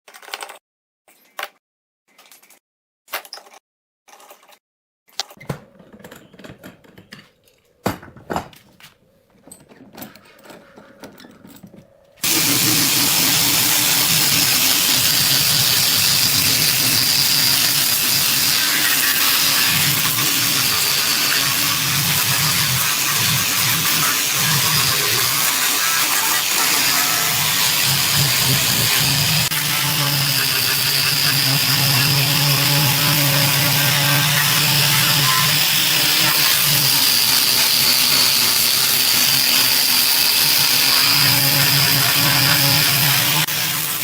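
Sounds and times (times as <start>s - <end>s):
electric woodworking power tool running: 12.2s - 44.0s.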